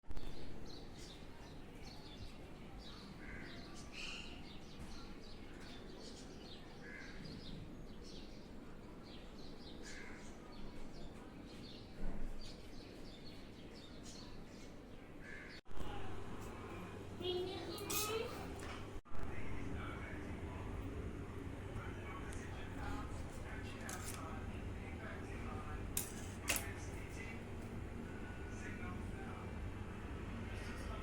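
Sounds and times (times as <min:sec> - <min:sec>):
birds chirping: 0:16.6 - 0:19.0, 0:19.8 - 0:31.0.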